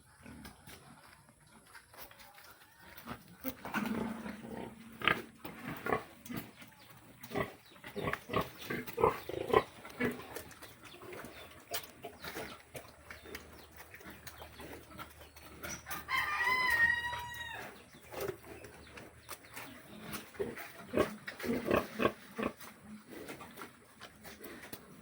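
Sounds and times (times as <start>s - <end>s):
pigs grunting: 3.1s - 15.9s, 18.0s - 25.0s
rooster crowing: 15.9s - 17.8s.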